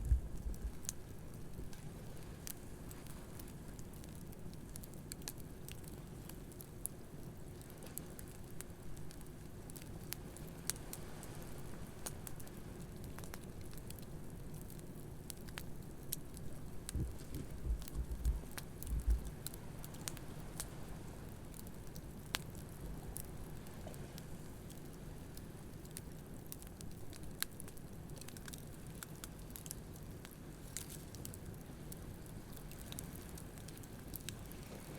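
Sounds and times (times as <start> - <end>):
low thumps: 0.0 - 0.8, 16.9 - 19.3
campfire crackling and popping: 0.0 - 2.6, 11.9 - 23.7, 24.4 - 34.9.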